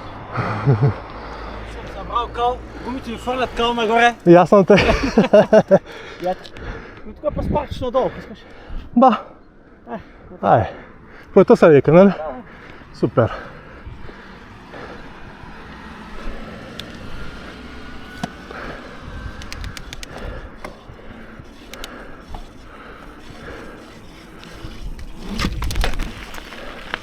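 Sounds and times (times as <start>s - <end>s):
bike tyres on dirt trail: 0.0s - 8.9s, 10.6s - 27.0s
bike clicks and rattles: 2.8s - 7.1s, 15.6s - 27.0s.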